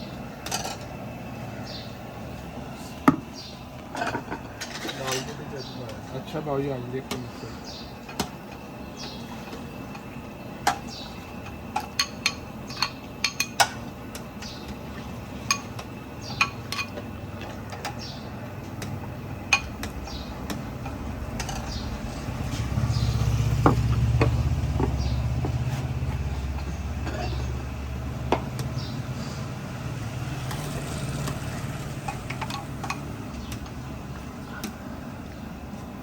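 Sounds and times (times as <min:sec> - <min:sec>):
metal dishes and utensils clinking: 0:00.5 - 0:00.9, 0:03.9 - 0:05.5, 0:16.3 - 0:18.0, 0:21.3 - 0:21.8
passing vehicle engine rumble: 0:17.0 - 0:35.6.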